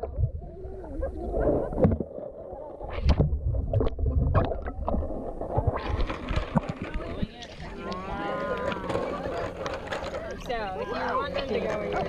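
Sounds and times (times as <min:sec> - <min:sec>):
low rumble: 0:00.0 - 0:09.0
pool water sloshing: 0:03.8 - 0:12.0.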